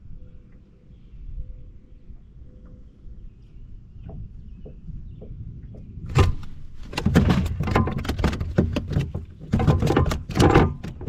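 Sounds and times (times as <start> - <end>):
fish thrashing on kayak: 6.1 - 11.0.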